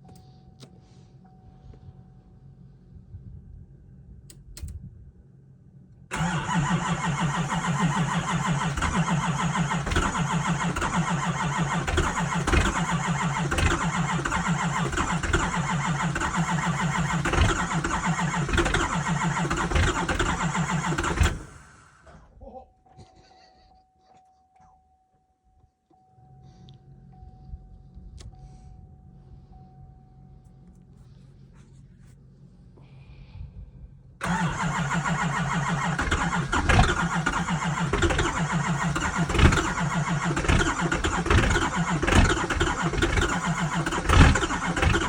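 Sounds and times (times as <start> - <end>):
diesel engine running unevenly: 6.1 - 22.0, 34.2 - 45.0.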